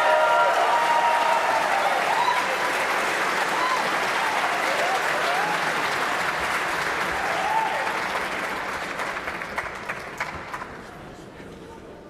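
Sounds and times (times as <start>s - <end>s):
audience cheer: 0.0s - 8.4s
audience applauding: 0.0s - 10.9s.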